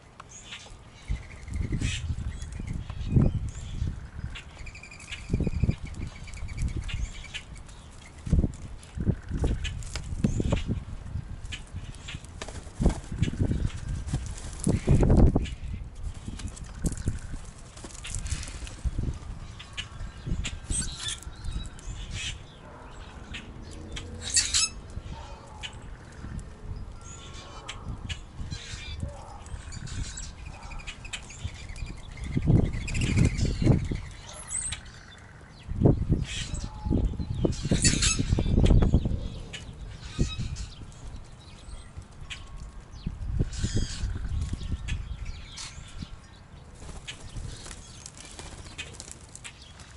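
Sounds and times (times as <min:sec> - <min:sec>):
grackles calling harshly: 0:22.1 - 0:26.2.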